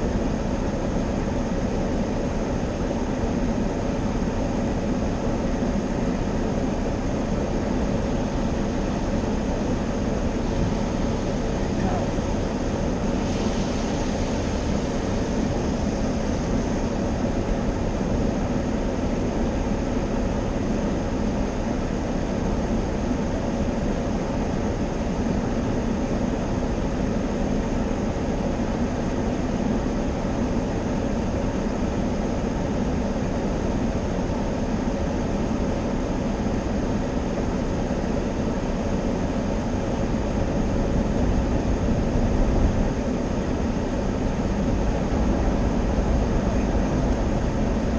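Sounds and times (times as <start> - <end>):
car wash machinery running: 0.0 - 47.9.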